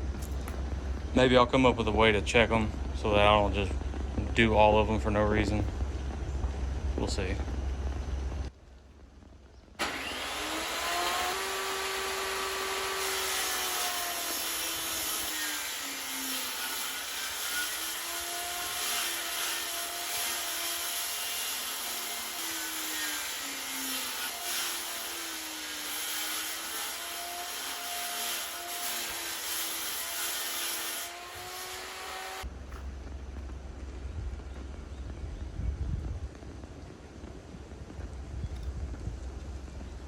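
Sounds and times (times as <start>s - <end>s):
table saw cutting boards: 9.8s - 32.5s.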